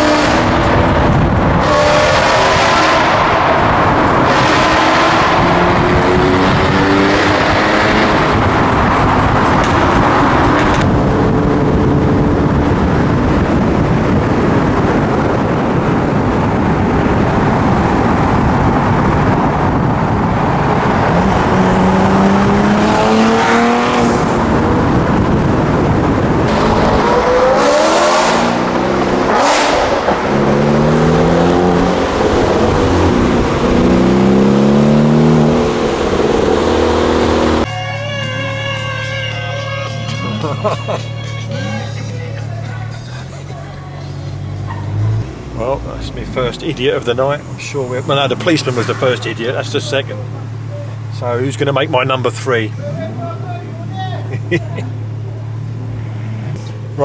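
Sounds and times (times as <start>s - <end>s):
loud steady rushing noise: 0.0s - 37.7s, 44.2s - 57.0s
car engines revving: 0.0s - 57.0s.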